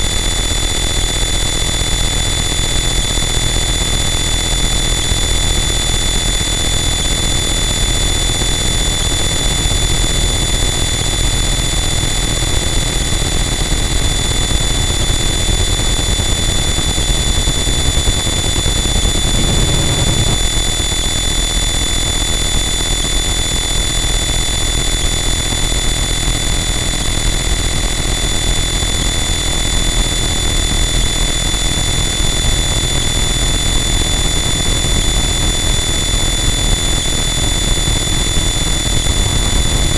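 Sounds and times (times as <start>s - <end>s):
distorted noise wall: 9.0s - 21.8s, 29.6s - 39.9s.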